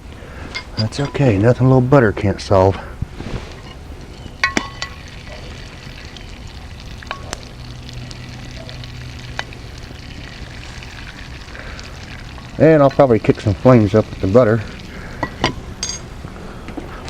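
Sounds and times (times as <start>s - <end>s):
butter sizzling: 3.1s - 16.2s
small crackles: 3.2s - 15.2s
metallic clinks: 15.2s - 16.1s.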